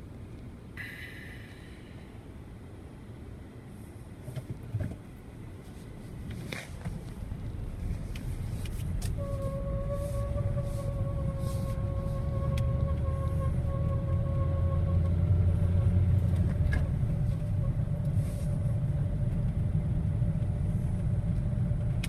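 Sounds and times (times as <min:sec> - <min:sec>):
car engine and road rumble: 0:00.0 - 0:22.0
high squeal from under car: 0:09.1 - 0:15.2.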